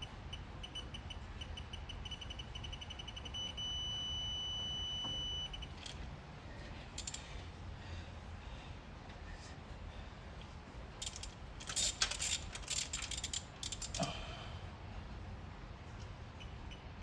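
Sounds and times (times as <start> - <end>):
sharp metallic clicks: 7.0 - 7.2, 11.0 - 14.1
torque wrench beeping: 7.0 - 7.3, 11.0 - 14.1.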